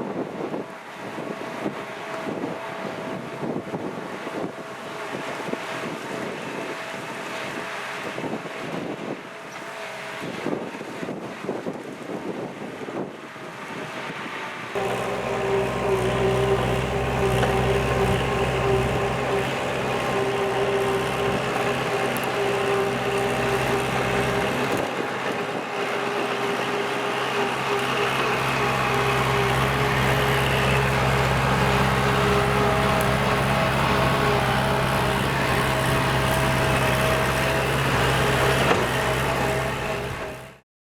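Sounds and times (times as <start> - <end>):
tractor diesel engine under load: 14.8 - 40.6.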